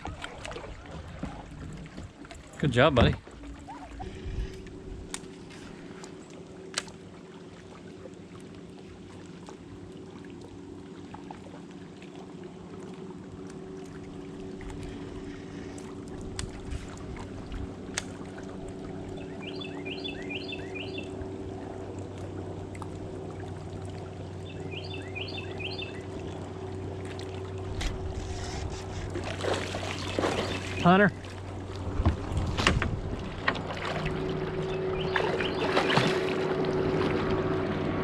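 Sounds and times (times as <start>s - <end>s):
low motor hum: 0.0s - 38.0s
bird chirping: 19.2s - 21.1s, 24.4s - 26.0s, 30.0s - 30.9s, 34.6s - 36.2s.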